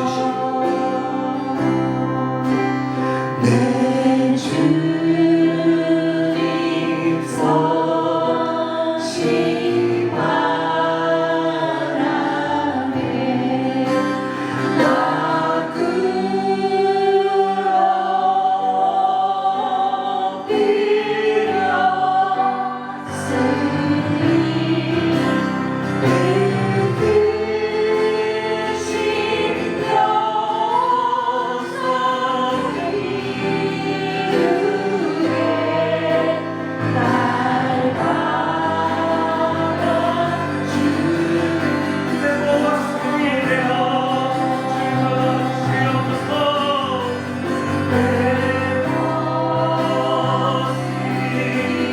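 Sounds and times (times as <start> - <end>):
group singing worship song: 0.0 - 51.9.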